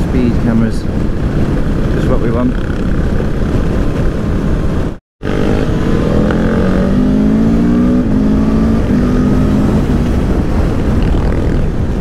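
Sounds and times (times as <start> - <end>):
wind rush: 0.0 - 12.0
motorcycle engine revving: 5.2 - 12.0.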